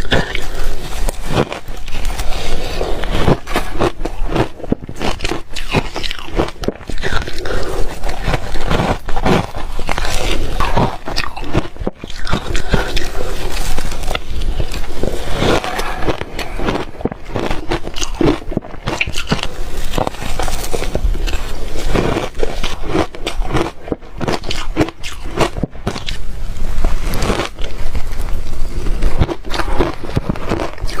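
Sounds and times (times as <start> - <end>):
person crunching ice: 0.0 - 31.0.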